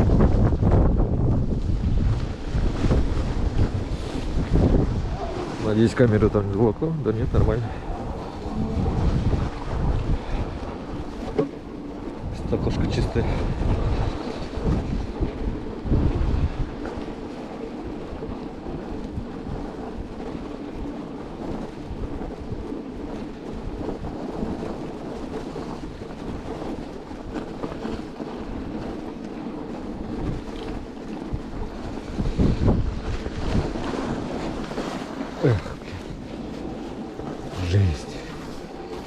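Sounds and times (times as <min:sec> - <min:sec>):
wind buffeting microphone: 0:00.0 - 0:39.0
electric bike riding through snow: 0:13.6 - 0:35.2.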